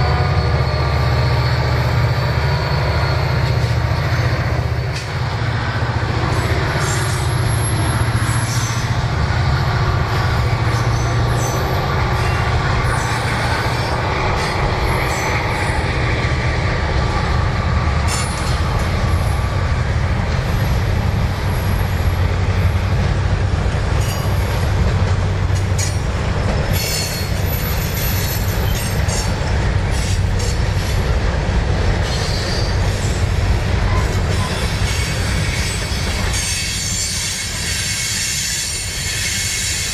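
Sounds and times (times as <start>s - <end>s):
wheel squeals: 0.0s - 5.2s
freight train rumbling: 0.0s - 39.9s
wheels clicking over rail joints: 17.9s - 39.9s.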